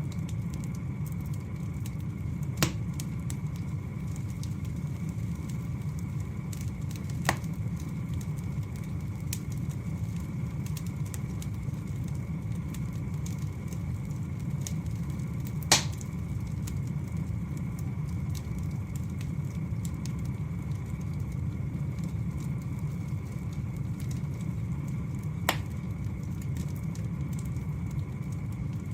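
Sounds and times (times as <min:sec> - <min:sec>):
fire crackling: 0:00.0 - 0:28.9
fire rumbling: 0:00.0 - 0:28.9
logs popping sharply: 0:02.6 - 0:02.9, 0:15.7 - 0:16.0, 0:25.5 - 0:25.7.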